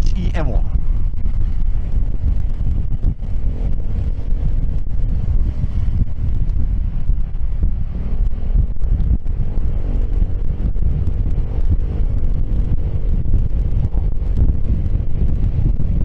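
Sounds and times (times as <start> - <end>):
scooter engine hum: 0.0 - 16.0
wind buffeting microphone: 0.0 - 16.0.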